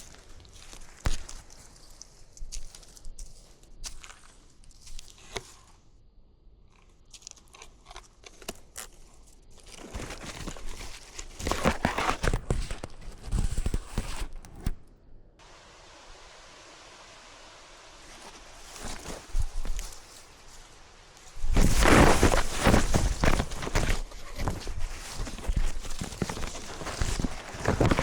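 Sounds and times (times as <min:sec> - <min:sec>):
steady hiss: 0:00.0 - 0:05.5, 0:15.4 - 0:28.0
crunching crackling rustle: 0:00.0 - 0:15.6, 0:17.8 - 0:28.0.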